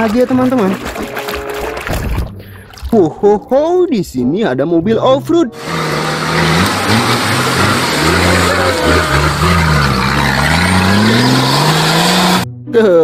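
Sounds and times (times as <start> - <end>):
off-road vehicle engine revving: 5.5 - 12.5
loud mechanical noise: 5.6 - 12.4.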